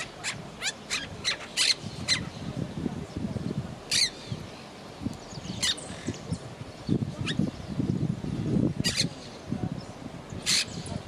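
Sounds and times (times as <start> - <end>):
parakeet squawking: 0.0 - 2.4, 3.9 - 4.2, 8.8 - 9.1.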